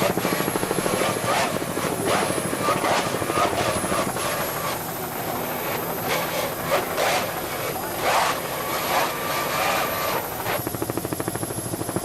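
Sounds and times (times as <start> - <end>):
pulsing motor noise: 0.0 - 11.9.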